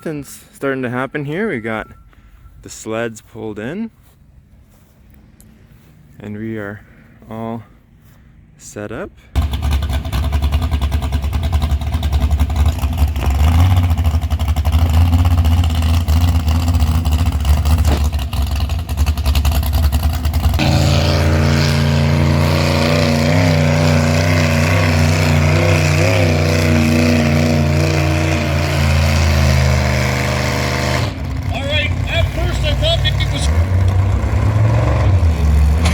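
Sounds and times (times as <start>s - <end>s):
tractor engine running rough: 9.4s - 35.9s.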